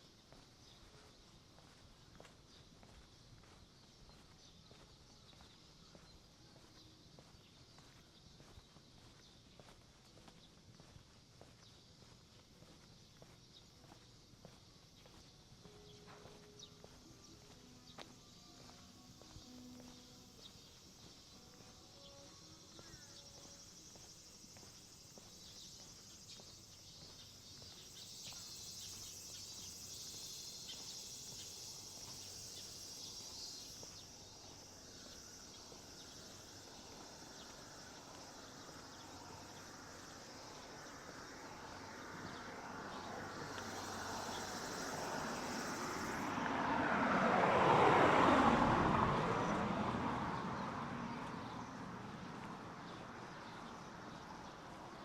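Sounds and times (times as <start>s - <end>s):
insects chirring: 0.0s - 55.0s
vehicle passing by: 41.1s - 55.0s.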